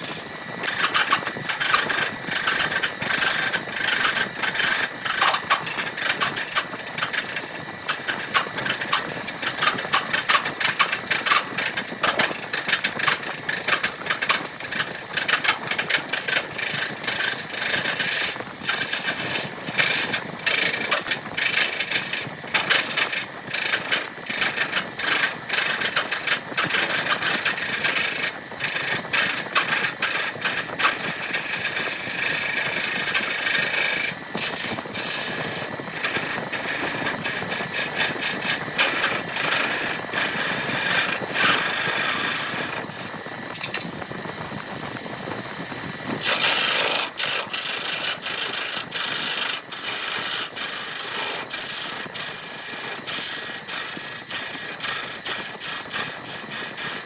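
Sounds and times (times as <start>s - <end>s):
sharp clicks and knocks: 0.0s - 16.4s, 38.2s - 44.1s
power tool running on wood: 0.0s - 57.0s.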